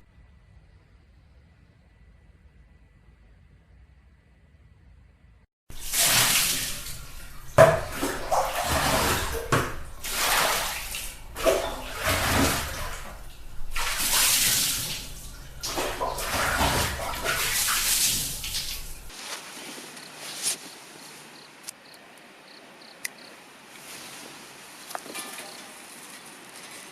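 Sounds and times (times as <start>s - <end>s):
water splashing and sloshing: 5.7s - 21.7s.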